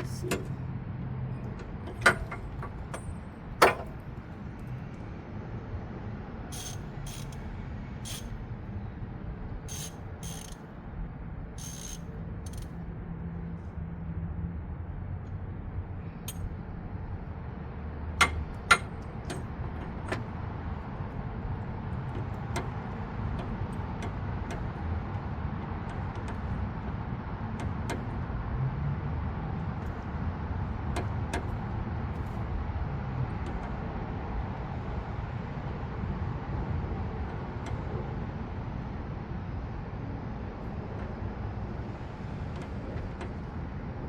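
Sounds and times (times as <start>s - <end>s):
socket wrench and tools clicking: 6.6s - 7.5s, 8.1s - 8.3s, 9.7s - 10.6s, 11.6s - 12.7s.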